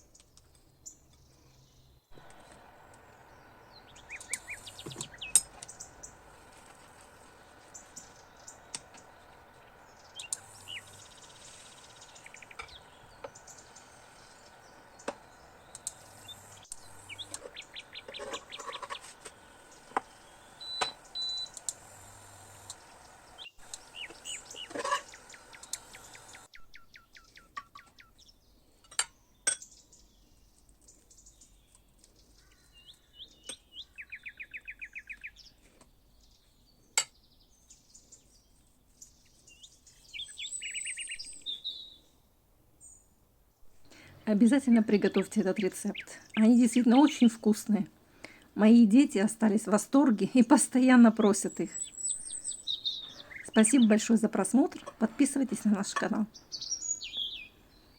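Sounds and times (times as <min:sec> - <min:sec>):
faint steady hiss: 0:00.0 - 0:26.8, 0:37.7 - 0:57.9
small birds chirping: 0:00.0 - 0:57.9.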